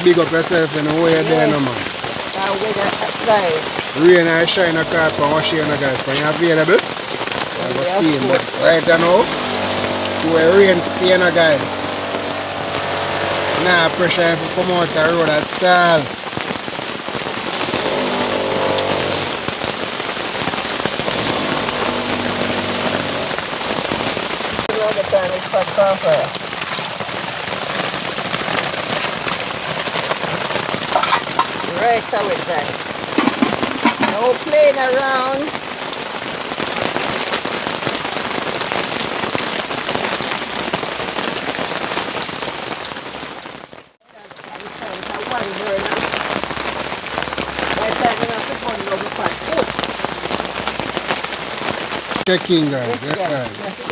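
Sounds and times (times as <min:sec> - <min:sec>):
heavy rain pattering: 0:00.0 - 0:53.9
hum with high whine: 0:04.4 - 0:06.1, 0:08.0 - 0:15.8, 0:17.2 - 0:24.6.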